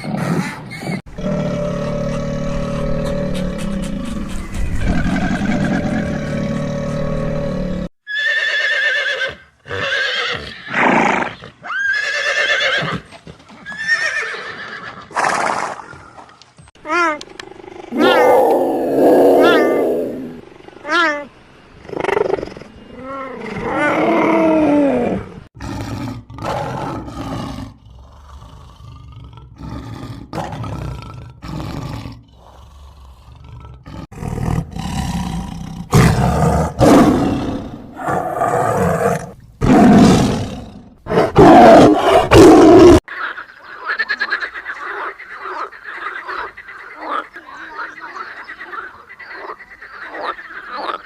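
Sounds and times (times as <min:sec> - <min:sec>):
big cat roaring and growling: 0:01.1 - 0:07.9, 0:17.5 - 0:20.4, 0:23.0 - 0:43.0
frogs croaking: 0:43.1 - 0:51.0.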